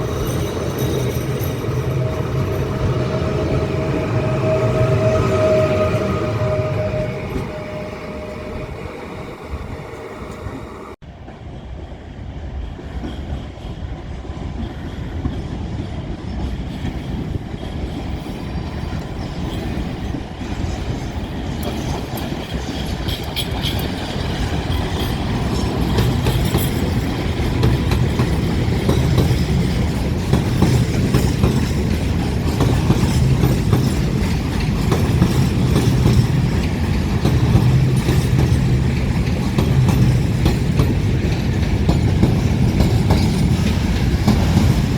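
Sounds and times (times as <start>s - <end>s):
train wheels clattering over rails: 0.0s - 8.3s, 11.2s - 44.9s.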